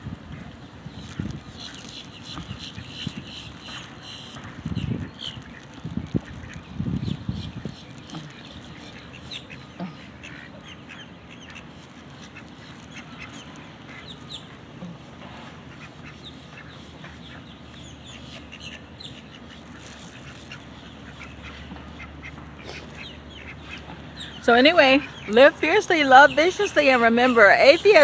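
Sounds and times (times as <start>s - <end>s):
low background hum: 0.0s - 28.0s
birds chirping: 0.8s - 28.0s
ducks quacking: 7.5s - 28.0s.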